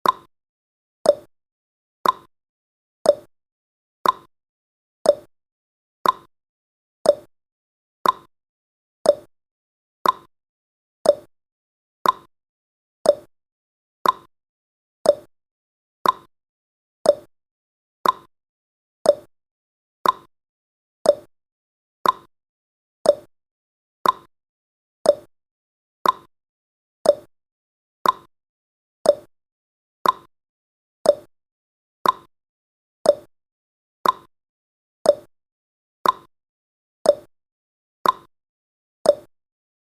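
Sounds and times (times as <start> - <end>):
clock ticking: 2.0 - 2.3, 4.0 - 4.3, 6.0 - 6.3, 8.0 - 8.3, 10.0 - 10.3, 12.0 - 12.3, 14.0 - 14.3, 15.1 - 15.3, 16.0 - 16.3, 18.0 - 18.3, 20.0 - 20.3, 22.0 - 22.3, 24.0 - 24.3, 25.1 - 25.3, 26.0 - 26.3, 27.1 - 27.3, 28.0 - 28.3, 29.1 - 29.3, 30.0 - 30.3, 32.0 - 32.3, 33.1 - 33.3, 34.0 - 34.3, 36.0 - 36.3, 38.0 - 38.3.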